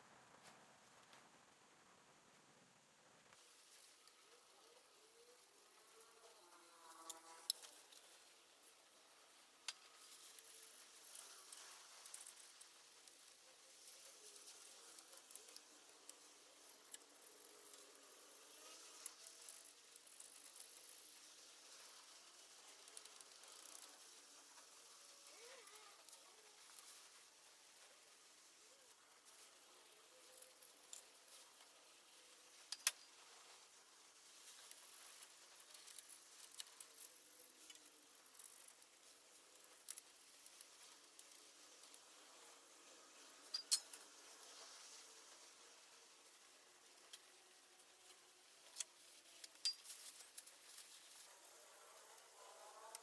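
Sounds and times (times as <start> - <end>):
faint hiss: 0.0 - 53.0
small clicks: 6.9 - 8.2, 9.6 - 28.0, 28.8 - 33.7, 34.3 - 42.1, 43.4 - 44.7.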